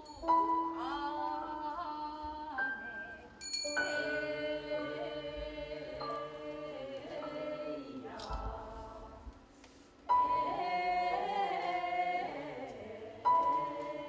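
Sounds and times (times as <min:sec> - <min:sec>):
small bell ringing: 0:00.0 - 0:00.4, 0:03.4 - 0:04.2.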